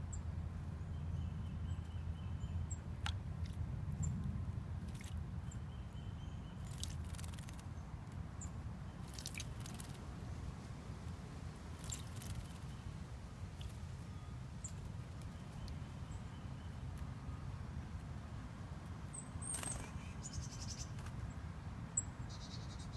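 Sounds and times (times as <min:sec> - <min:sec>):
birds splashing in water: 0:02.9 - 0:04.2, 0:04.8 - 0:05.6, 0:06.4 - 0:07.7, 0:08.9 - 0:10.1, 0:11.5 - 0:16.8
high bird pips: 0:06.5 - 0:07.7, 0:19.3 - 0:21.2.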